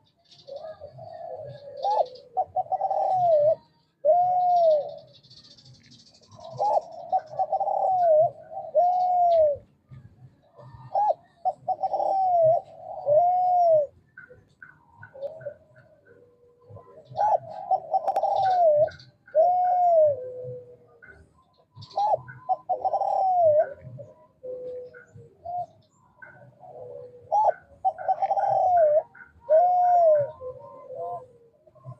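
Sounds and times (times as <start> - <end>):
dove cooing: 0.0 - 31.9.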